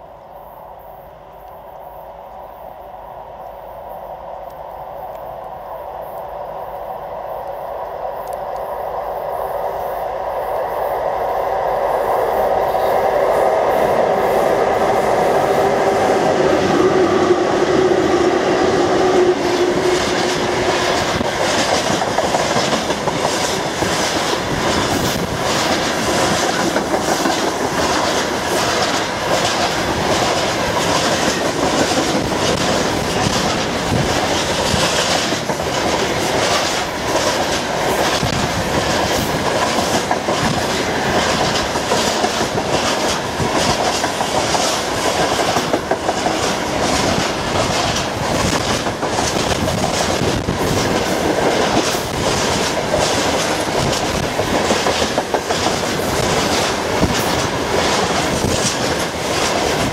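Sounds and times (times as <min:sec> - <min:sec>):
electric locomotive hum: 0:00.0 - 0:59.9
wagon wheels clickety-clack: 0:20.1 - 0:38.4, 0:39.0 - 0:59.9.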